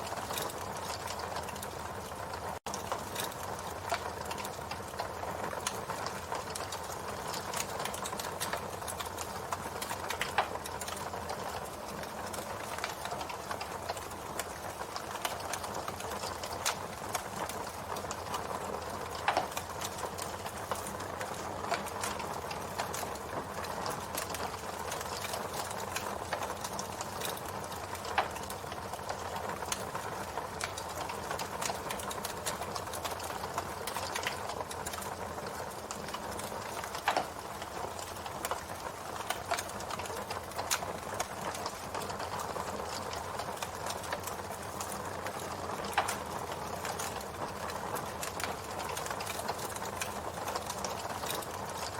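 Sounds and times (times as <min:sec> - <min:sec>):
campfire crackling: 0:00.0 - 0:51.9
wood popping and snapping: 0:19.1 - 0:23.2, 0:35.8 - 0:47.2.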